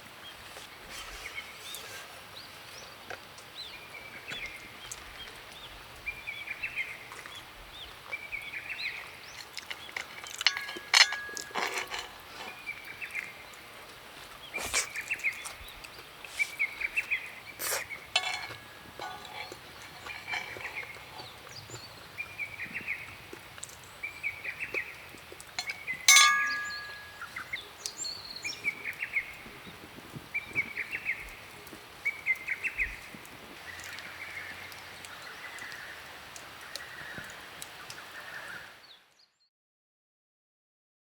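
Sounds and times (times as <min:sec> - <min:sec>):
birds chirping: 0:02.4 - 0:29.8
sharp clink with ring: 0:10.4 - 0:12.1, 0:18.2 - 0:20.6, 0:25.6 - 0:27.3.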